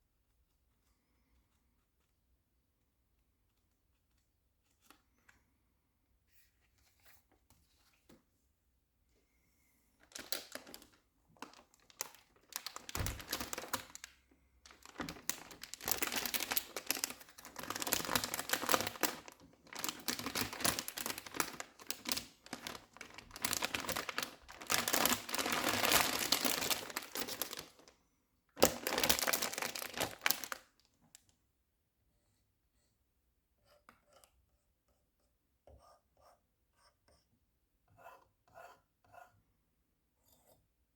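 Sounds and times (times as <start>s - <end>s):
packaging crinkling and rustling: 10.0s - 28.0s, 28.6s - 31.2s.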